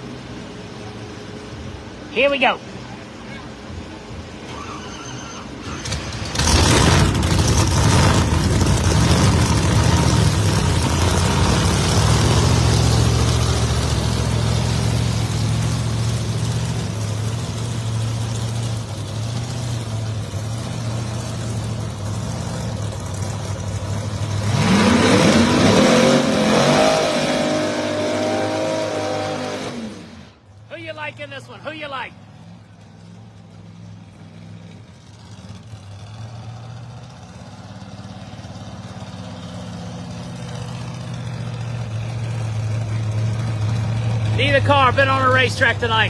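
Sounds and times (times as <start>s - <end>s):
drag race cars at full throttle: 0.0s - 46.0s
engine revving up: 4.5s - 17.0s, 24.1s - 30.3s.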